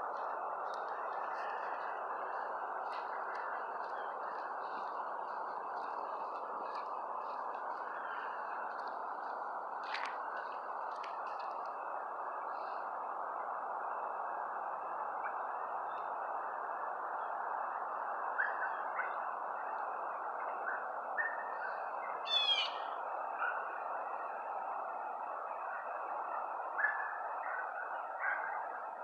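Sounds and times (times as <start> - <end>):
birds chirping: 0.0 - 11.6
faint high hum: 0.0 - 29.0.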